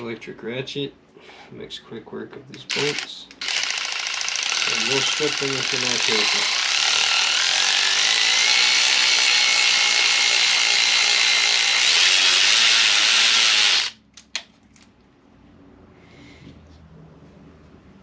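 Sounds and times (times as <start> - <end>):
electric ratchet motor whine: 2.7 - 14.0.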